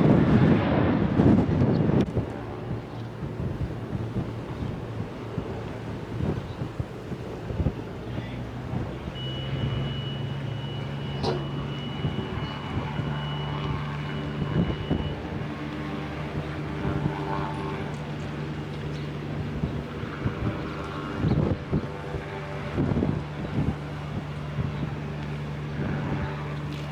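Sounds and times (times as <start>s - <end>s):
vehicle engine humming: 2.0s - 26.9s.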